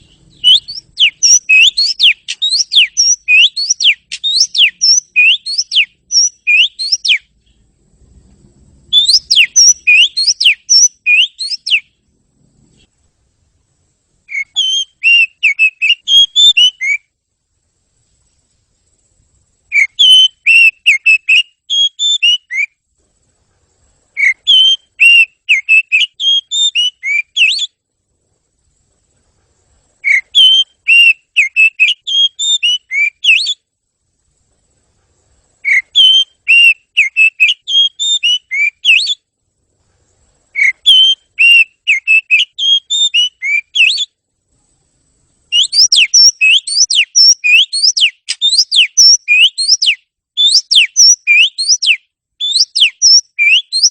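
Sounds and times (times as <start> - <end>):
songbird whistling song: 0.0 - 7.7, 8.6 - 12.0, 14.2 - 17.2, 19.6 - 22.8, 24.0 - 27.8, 30.0 - 33.7, 35.5 - 39.3, 40.5 - 44.2, 45.5 - 53.9.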